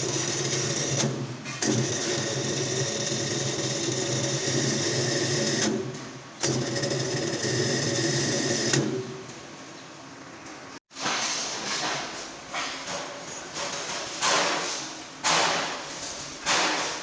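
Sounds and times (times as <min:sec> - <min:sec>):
electric hoist motor humming: 0:00.0 - 0:09.4.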